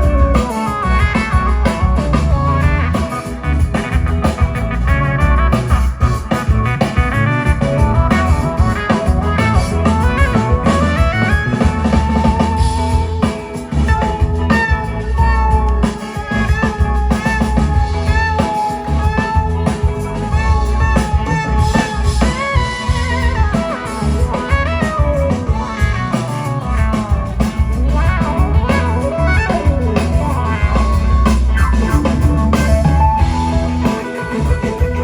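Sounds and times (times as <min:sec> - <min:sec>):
bass guitar: 0:00.0 - 0:35.0
drum kit: 0:00.0 - 0:35.0
electric guitar lead: 0:00.0 - 0:35.0.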